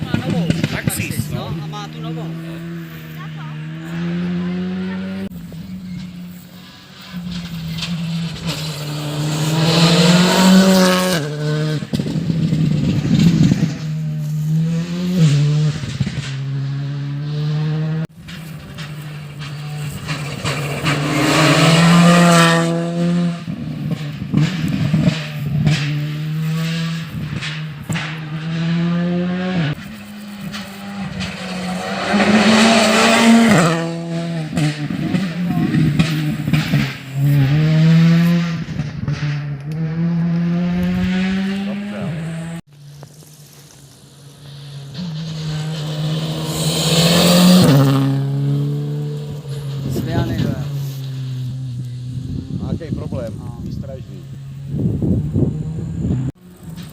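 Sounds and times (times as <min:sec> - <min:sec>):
rally car engine passing at speed: 0:00.0 - 0:56.9
tyre noise hiss: 0:42.8 - 0:47.6.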